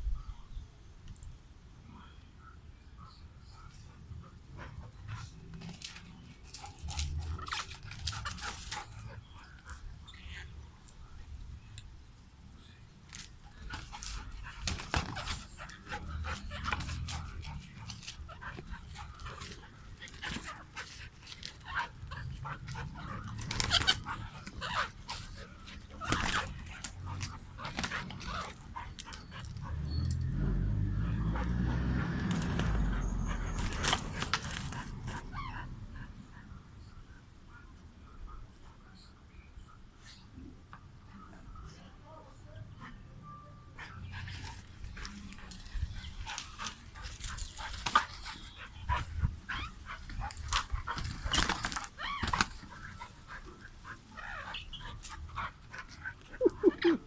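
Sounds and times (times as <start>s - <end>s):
animals scuffling with clicks: 4.8s - 9.8s, 13.0s - 35.2s, 44.1s - 56.7s
dog yipping and whining: 48.9s - 50.0s, 50.8s - 53.0s.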